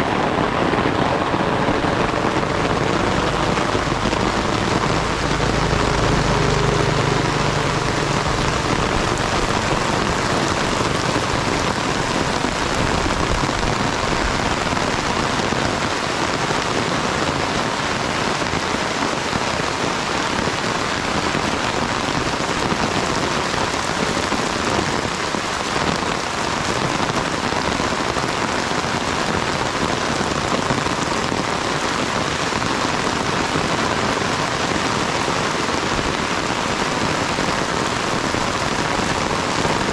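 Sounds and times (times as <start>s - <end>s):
steady rain hiss: 0.0s - 39.9s
low hum: 1.6s - 12.5s.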